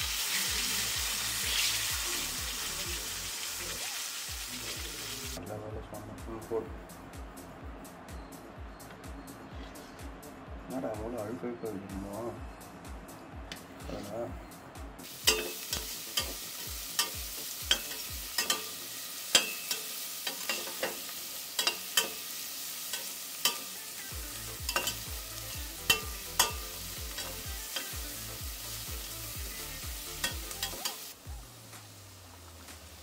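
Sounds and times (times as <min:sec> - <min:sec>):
garlic sizzling in hot oil: 0:00.0 - 0:05.4, 0:15.0 - 0:33.0
metal spatula scraping a pan: 0:15.2 - 0:23.8, 0:24.5 - 0:28.0.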